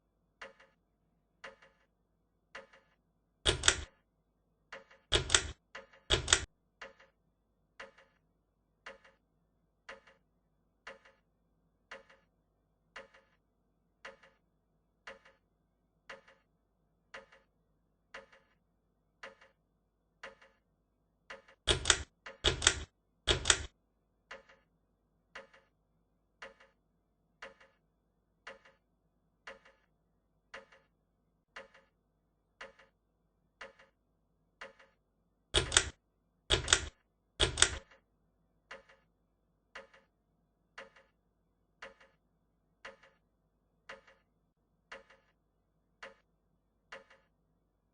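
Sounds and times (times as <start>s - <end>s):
loud rattly clicks: 3.5s - 3.9s, 4.8s - 7.1s, 21.3s - 23.7s, 35.6s - 38.0s.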